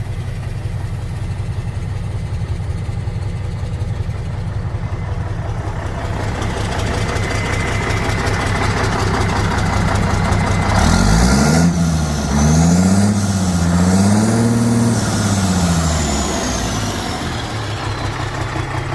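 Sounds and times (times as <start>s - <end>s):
truck diesel engine idling and revving: 0.0s - 18.9s.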